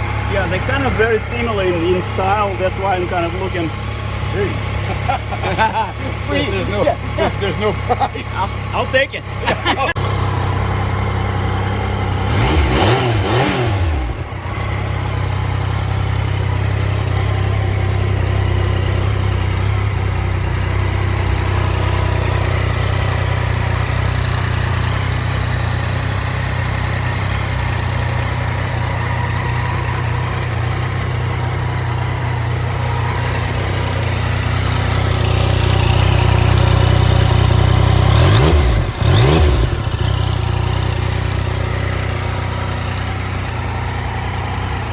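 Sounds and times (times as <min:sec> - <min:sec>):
motorcycle engine idling and revving: 0:00.0 - 0:44.9.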